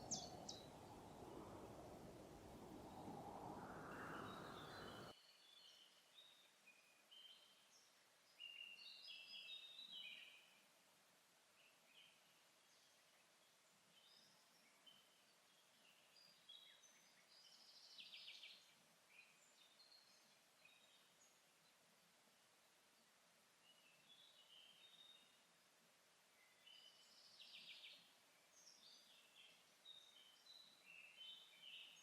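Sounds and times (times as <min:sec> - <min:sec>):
bird trill: 0:00.0 - 0:01.3
birds chirping: 0:00.0 - 0:05.1.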